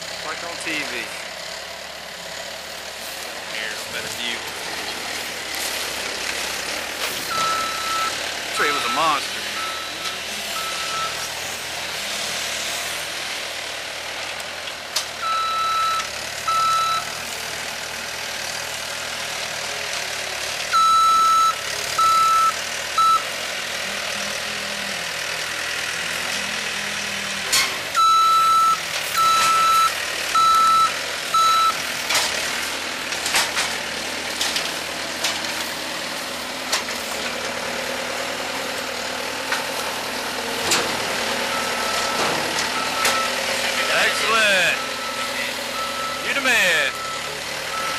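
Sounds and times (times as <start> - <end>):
diesel engine running: 0.0 - 47.9
backup alarm beeping: 7.3 - 11.2, 15.2 - 17.0, 20.8 - 23.2, 28.0 - 31.8, 41.5 - 47.9.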